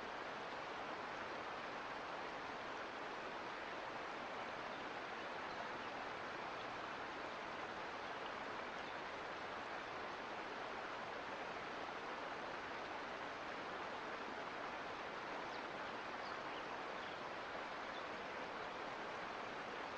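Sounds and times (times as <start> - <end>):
creek water rushing: 0.0 - 19.9.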